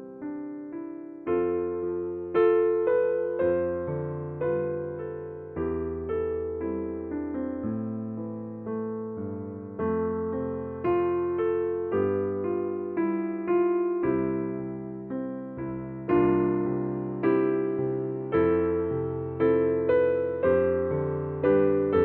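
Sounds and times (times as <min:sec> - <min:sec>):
gentle electric piano: 0:00.0 - 0:22.0.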